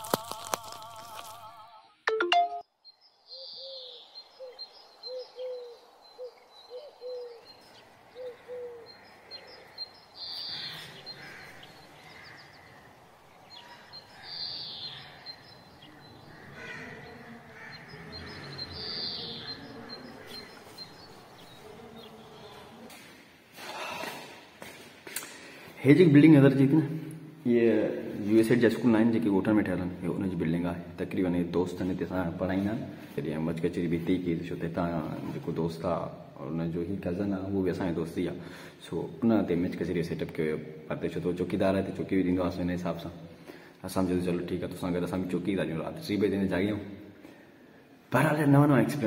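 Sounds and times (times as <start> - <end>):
birds chirping: 2.3 - 24.6.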